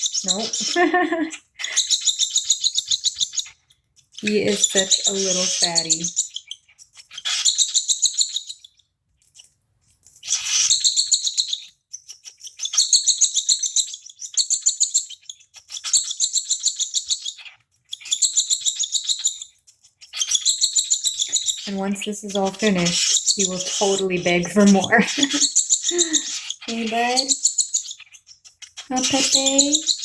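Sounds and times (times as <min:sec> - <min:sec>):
bird chick begging calls: 0:04.2 - 0:06.5, 0:20.2 - 0:30.0.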